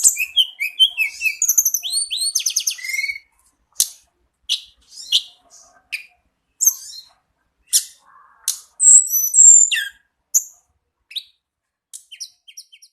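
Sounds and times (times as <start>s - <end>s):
high whistled bird notes: 0.0s - 3.3s, 8.6s - 10.5s
songbird calling: 0.0s - 11.4s.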